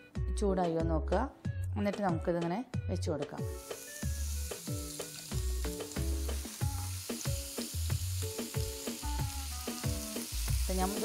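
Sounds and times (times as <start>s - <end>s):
chicken sizzling in oil: 3.5s - 11.0s.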